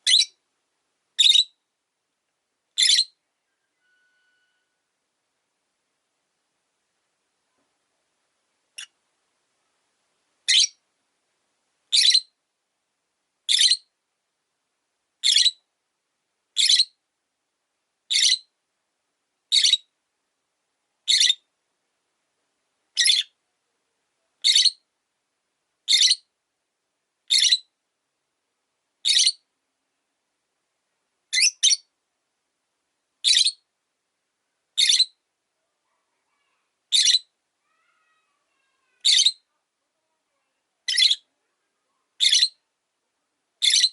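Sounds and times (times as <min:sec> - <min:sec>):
lovebird shrill chirps: 0:00.0 - 0:00.4, 0:01.2 - 0:01.6, 0:02.8 - 0:04.8, 0:10.5 - 0:10.8, 0:11.9 - 0:12.4, 0:13.5 - 0:13.9, 0:15.2 - 0:15.6, 0:16.6 - 0:16.9, 0:18.1 - 0:18.5, 0:19.5 - 0:19.9, 0:21.1 - 0:21.4, 0:23.0 - 0:23.4, 0:24.4 - 0:24.8, 0:25.9 - 0:26.2, 0:27.3 - 0:27.7, 0:29.0 - 0:29.4, 0:31.3 - 0:31.9, 0:33.2 - 0:33.6, 0:34.8 - 0:35.2, 0:36.9 - 0:37.3, 0:39.0 - 0:39.4, 0:40.9 - 0:41.3, 0:42.2 - 0:42.6, 0:43.6 - 0:43.9.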